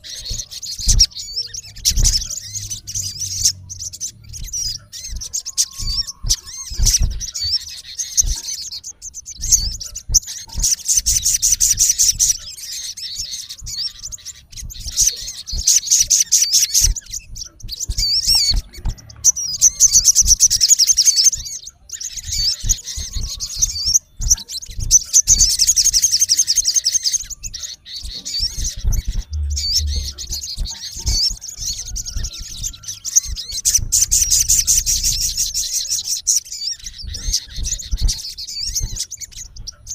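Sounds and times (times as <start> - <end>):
bird twittering: 0.0 - 39.9
low thumps: 28.4 - 35.7.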